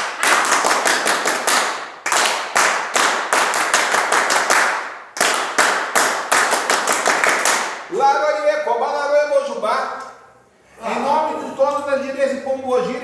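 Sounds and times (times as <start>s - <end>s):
people clapping in unison: 0.0s - 7.9s.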